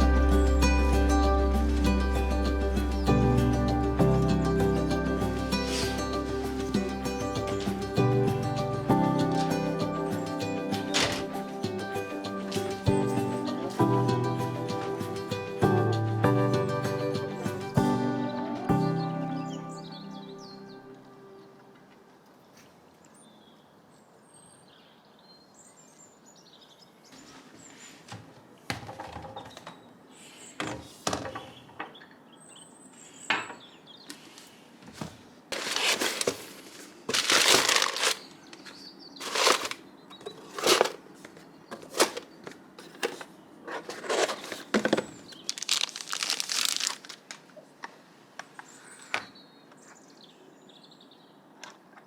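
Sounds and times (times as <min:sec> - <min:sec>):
rustling and crinkling: 0:05.3 - 0:08.6, 0:09.2 - 0:13.4, 0:34.1 - 0:48.0.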